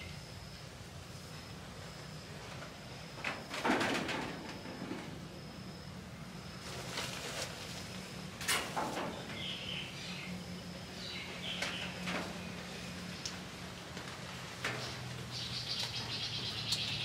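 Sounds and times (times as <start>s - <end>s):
steady low hum: 0.0s - 17.0s
birds chirping: 9.0s - 13.6s, 14.8s - 17.0s.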